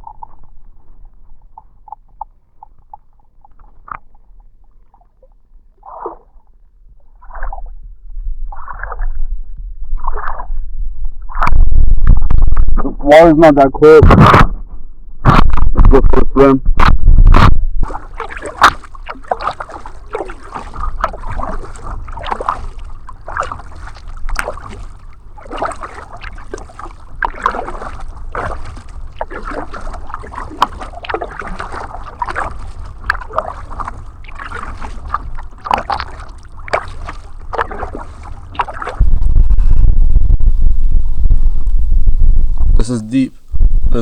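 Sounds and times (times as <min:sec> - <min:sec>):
paddle splashing in water: 0:03.4 - 0:06.5, 0:17.8 - 0:39.7
loud low rumble: 0:39.0 - 0:42.8.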